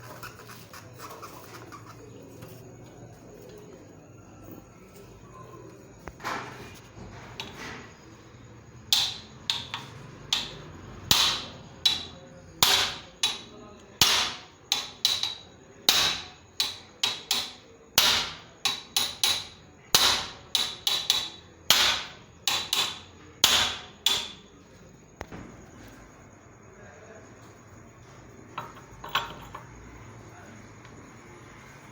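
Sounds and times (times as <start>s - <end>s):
hammer striking metal: 8.9s - 24.4s.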